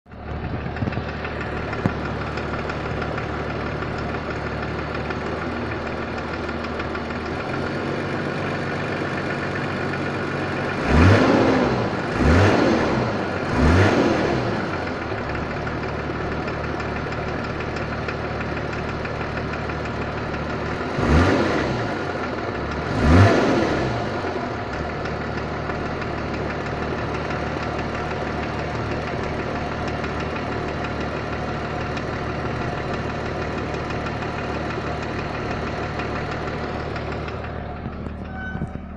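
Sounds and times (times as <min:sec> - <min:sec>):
diesel engine idling with knock: 0:00.1 - 0:38.9
engine revving: 0:07.2 - 0:16.0, 0:20.5 - 0:38.9.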